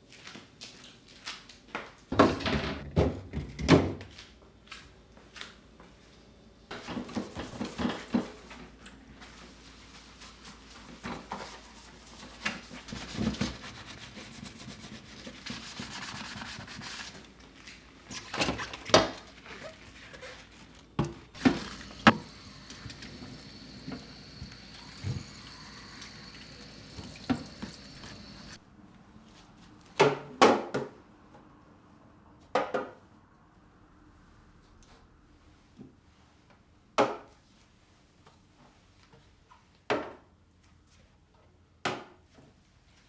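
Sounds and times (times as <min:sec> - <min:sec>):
scrubbing on kitchen surface: 0:06.9 - 0:08.1, 0:11.4 - 0:17.3, 0:21.4 - 0:28.6.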